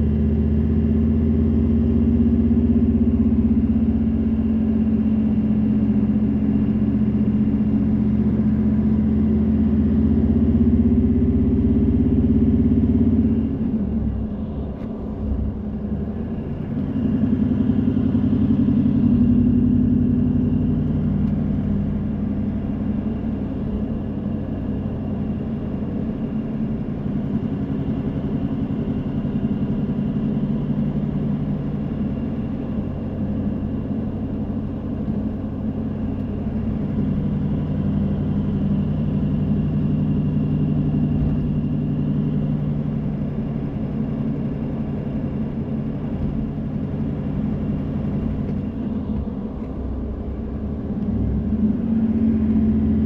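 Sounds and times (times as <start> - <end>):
car engine hum: 0.0 - 53.0
road noise: 0.0 - 53.0.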